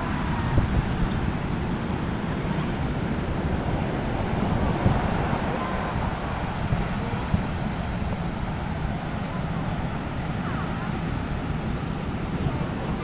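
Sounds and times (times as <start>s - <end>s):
heavy surf: 0.0s - 13.0s
wind buffeting microphone: 0.0s - 13.0s.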